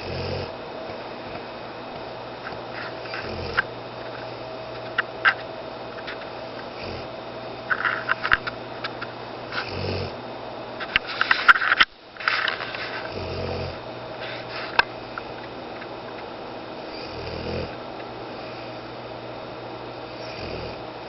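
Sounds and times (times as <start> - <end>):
dog snoring: 0.0 - 0.6, 2.5 - 3.7, 6.7 - 7.1, 9.5 - 10.2, 12.8 - 14.7, 16.8 - 18.8, 20.1 - 20.9.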